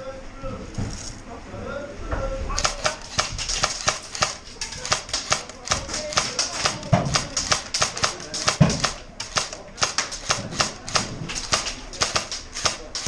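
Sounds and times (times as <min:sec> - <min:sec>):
airsoft gun shots: 0:02.6 - 0:13.0.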